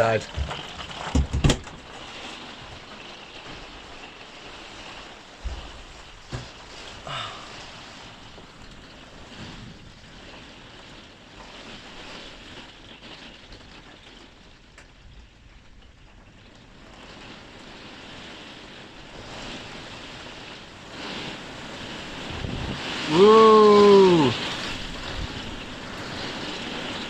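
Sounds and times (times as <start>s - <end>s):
rain falling: 0.0s - 27.0s
storm wind gusting: 17.1s - 27.0s
man whooping: 23.0s - 24.4s.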